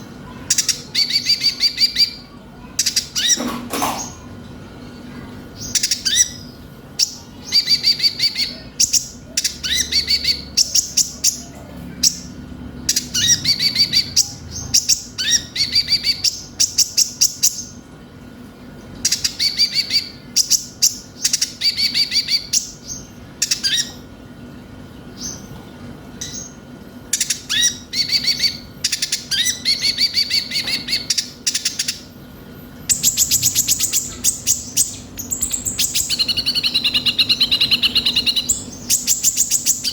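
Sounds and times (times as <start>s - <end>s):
faint steady hum: 0.0s - 39.9s
small bird singing trilled chirps: 32.9s - 39.9s.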